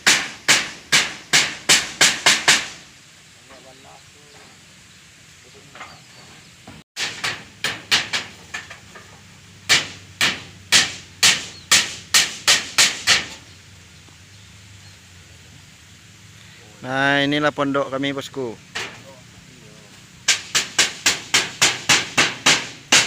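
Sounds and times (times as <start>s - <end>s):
hammer blows: 0.0s - 2.9s, 6.7s - 13.4s, 20.2s - 23.0s.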